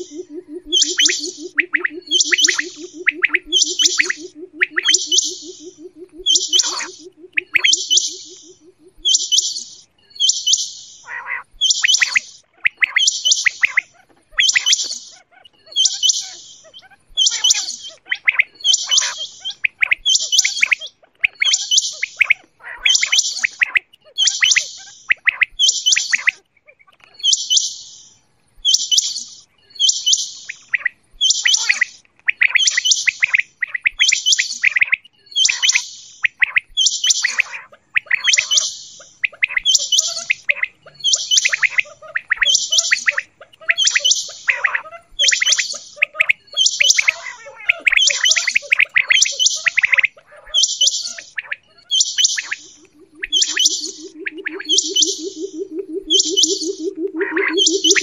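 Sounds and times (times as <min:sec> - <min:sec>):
quail calling: 0:00.0 - 0:58.0.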